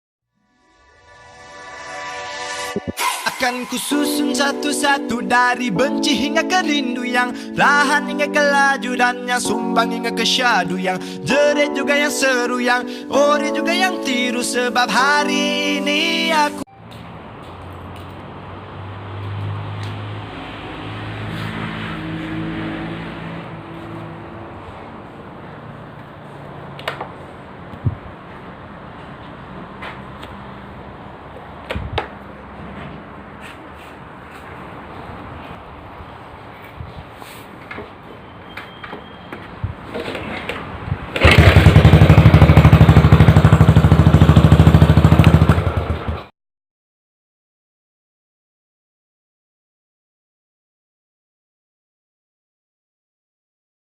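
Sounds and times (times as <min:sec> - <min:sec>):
motorcycle engine idling and revving: 0:16.9 - 0:27.0, 0:40.9 - 0:46.3
motorcycle engine put-put: 0:38.7 - 0:42.4.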